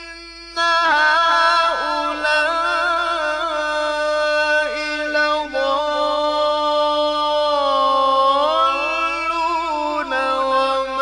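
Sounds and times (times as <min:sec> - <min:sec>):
man chanting recitation: 0:00.0 - 0:11.0.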